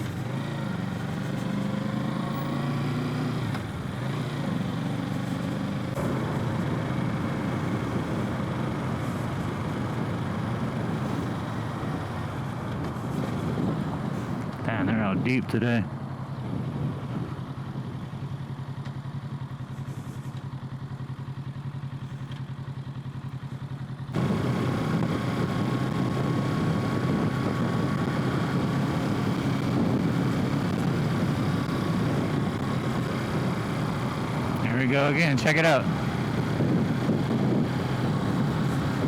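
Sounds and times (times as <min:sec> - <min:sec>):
motorcycle engine idling: 0:15.9 - 0:25.1.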